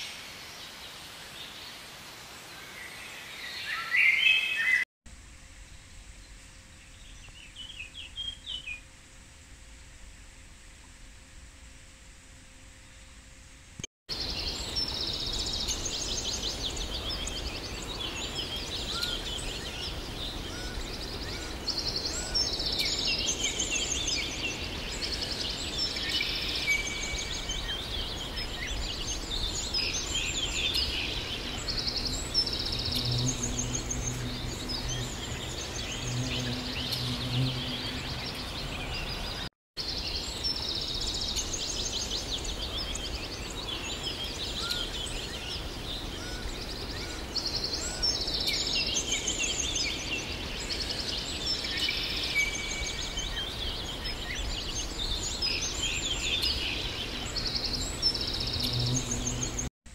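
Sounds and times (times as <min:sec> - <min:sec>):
songbirds chirping and trilling: 0:00.0 - 0:04.9, 0:14.1 - 0:59.7
outdoor background hiss: 0:00.0 - 0:59.9.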